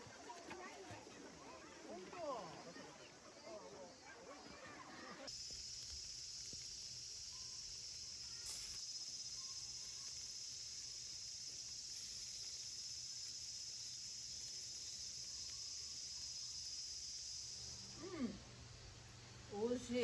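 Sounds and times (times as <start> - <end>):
insects shrilling: 5.3 - 18.3.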